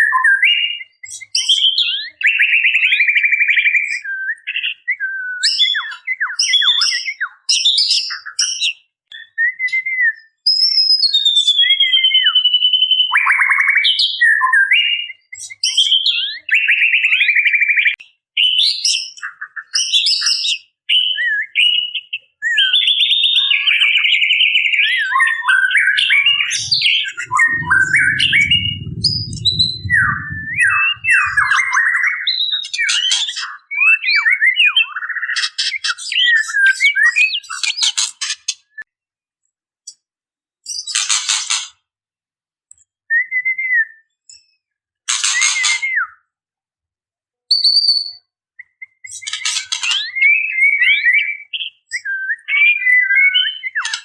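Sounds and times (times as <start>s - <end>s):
bird whistling calls: 25.1s - 32.4s
low rumble: 26.1s - 31.8s.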